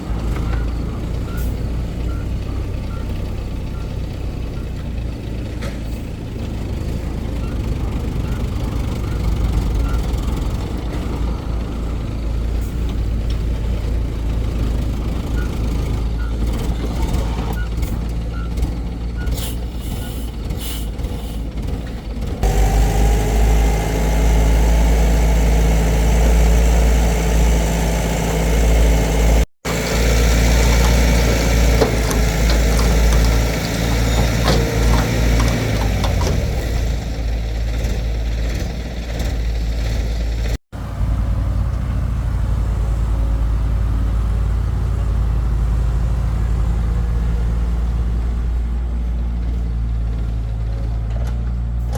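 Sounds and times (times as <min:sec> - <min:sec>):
excavator engine running: 0:00.0 - 0:51.9
metal clanks: 0:30.5 - 0:36.6.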